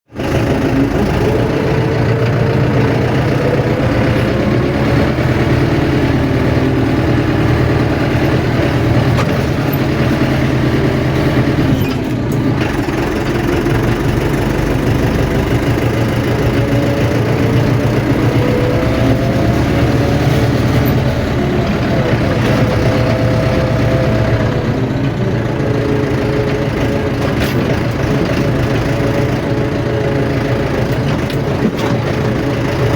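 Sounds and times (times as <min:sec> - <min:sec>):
high engine whine: 0:00.1 - 0:32.9
tractor engine running: 0:00.1 - 0:32.9.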